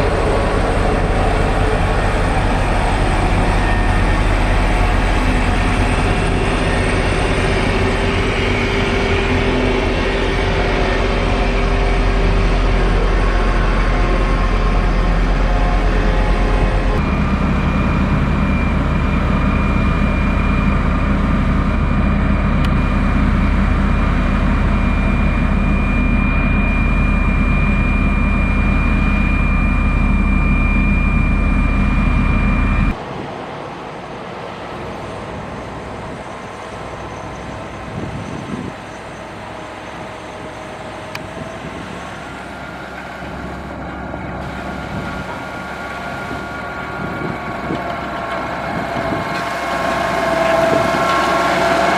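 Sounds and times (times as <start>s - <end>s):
heavy diesel engine running: 0.0s - 33.0s, 35.1s - 51.9s
distant engine: 35.4s - 51.9s.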